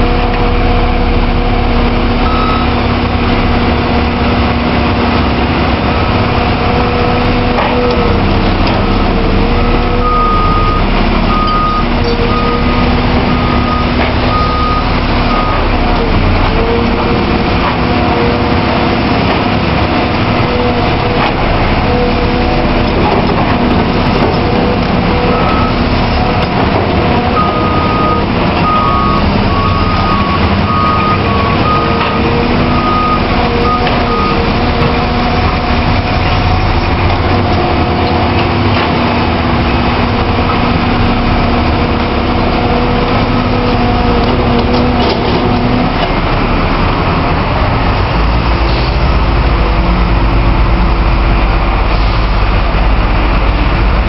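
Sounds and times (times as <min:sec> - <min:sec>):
excavator diesel engine running: 0:00.0 - 0:54.0
reversing alarm beeping: 0:02.2 - 0:02.8, 0:09.7 - 0:15.7, 0:25.1 - 0:25.9, 0:27.2 - 0:34.9.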